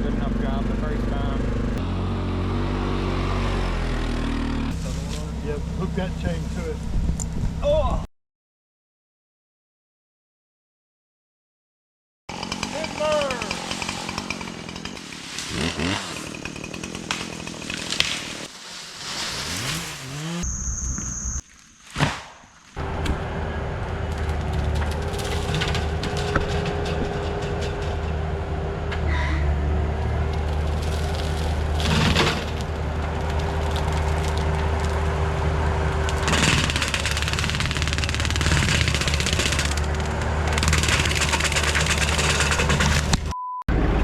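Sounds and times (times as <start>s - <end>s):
diesel engine running under load: 0.0s - 7.6s, 22.8s - 44.0s
sharp cracks and knocks: 14.7s - 20.4s, 21.5s - 23.2s, 24.1s - 28.2s, 30.2s - 43.3s
hydraulic whine: 19.4s - 21.5s.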